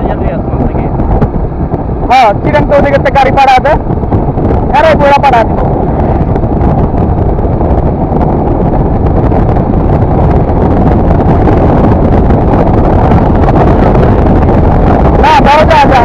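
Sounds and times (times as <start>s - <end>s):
motorcycle road and engine noise: 0.0s - 16.0s
wind rushing over microphone: 0.0s - 16.0s.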